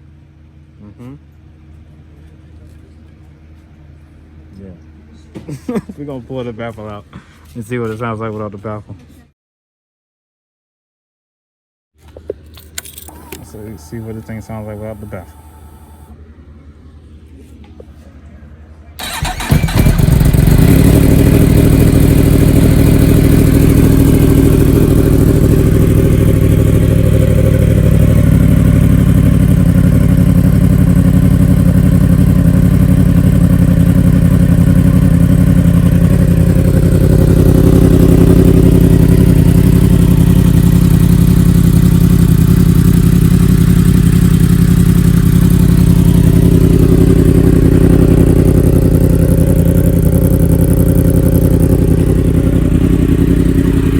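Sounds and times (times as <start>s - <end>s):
motorcycle engine idling loud: 13.4s - 16.1s, 19.0s - 53.9s.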